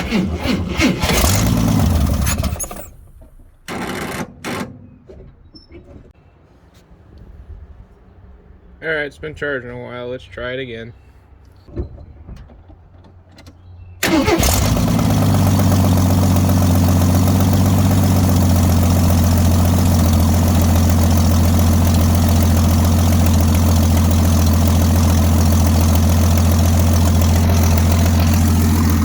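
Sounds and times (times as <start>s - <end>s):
engine starting and idling: 0.0s - 4.7s, 14.0s - 29.0s.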